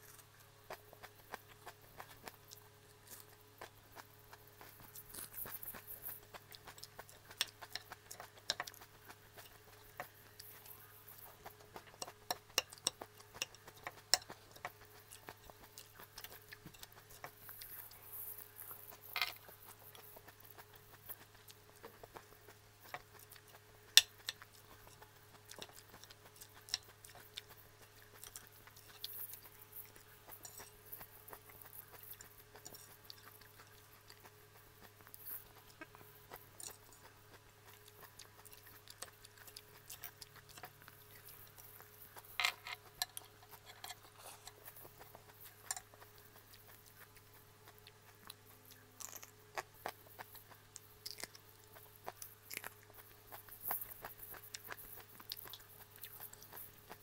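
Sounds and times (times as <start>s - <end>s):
crunching lettuce: 0.0s - 57.0s.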